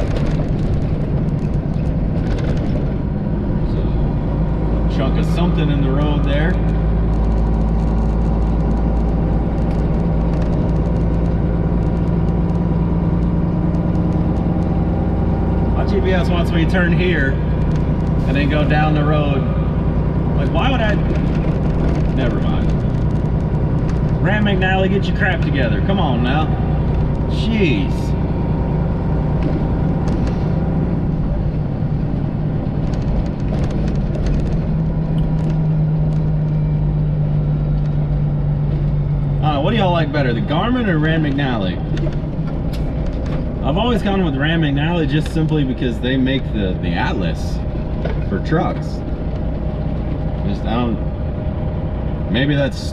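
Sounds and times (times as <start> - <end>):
truck engine droning: 0.0 - 52.9
light clicks and rattles: 6.0 - 14.8, 32.8 - 36.6
light ticks and rattles: 6.0 - 14.9, 20.6 - 26.1.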